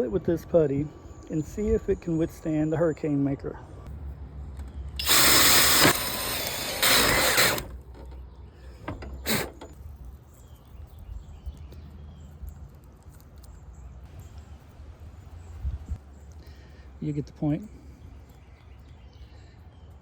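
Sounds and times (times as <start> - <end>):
power tool cutting wood: 5.0 - 7.8, 9.2 - 9.6.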